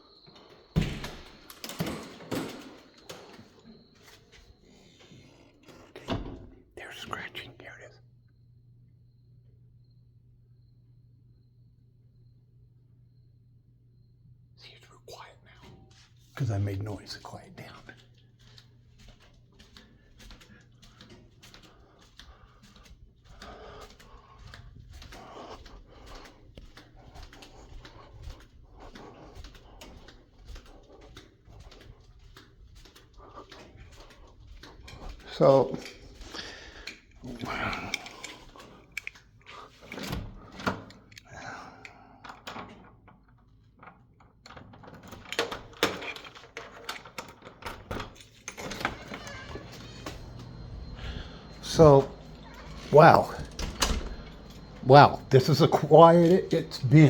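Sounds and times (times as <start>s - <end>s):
scratching and clicking inside wall: 0.0s - 8.4s, 14.3s - 56.9s
steady low hum: 49.5s - 57.0s.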